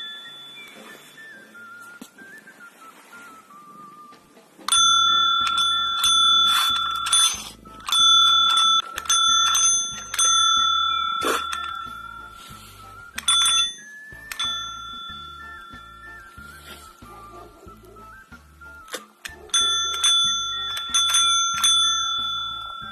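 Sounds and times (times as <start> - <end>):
small metal bell ringing: 0.0 - 1.3, 4.7 - 16.5, 19.5 - 22.9
background music with steady beat: 0.0 - 22.9.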